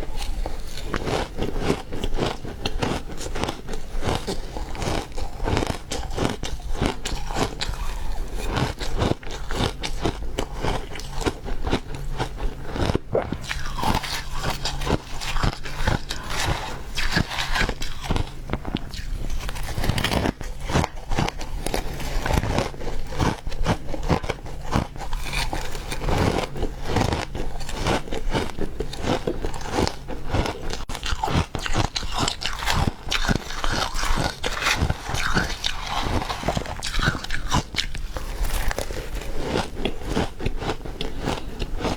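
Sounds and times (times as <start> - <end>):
person chewing ice crunching: 0.0 - 41.9.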